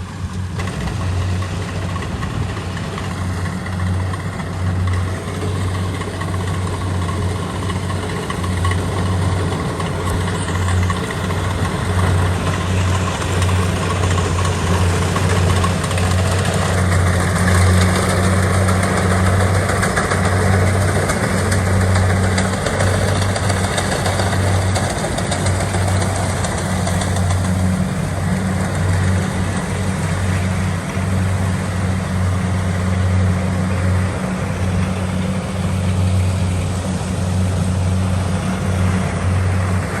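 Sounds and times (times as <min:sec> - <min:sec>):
diesel engine droning: 0:00.0 - 0:40.0
machinery noise: 0:00.0 - 0:40.0.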